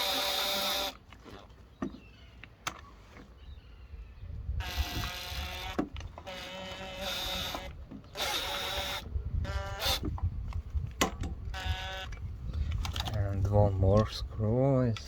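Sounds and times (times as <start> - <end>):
electric screwdriver whirring: 0.0 - 1.4, 4.6 - 10.2, 11.5 - 12.2.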